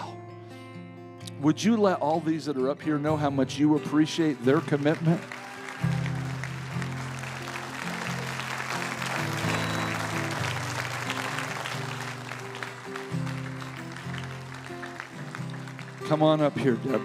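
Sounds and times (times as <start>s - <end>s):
soft instrumental music: 0.0s - 17.0s
crowd applauding: 4.2s - 17.0s.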